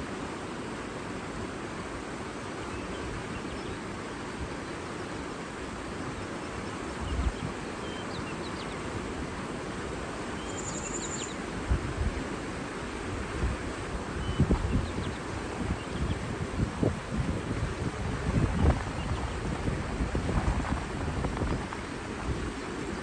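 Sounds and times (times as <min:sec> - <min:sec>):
water rushing: 0:00.0 - 0:23.0
faint bird chirps: 0:10.4 - 0:11.4.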